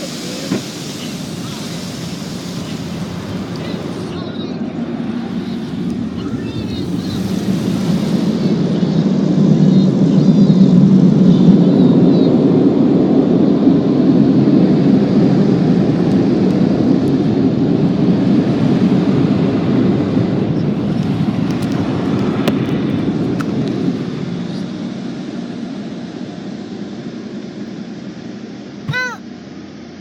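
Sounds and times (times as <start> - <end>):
car wash equipment rushing: 0.0 - 9.9.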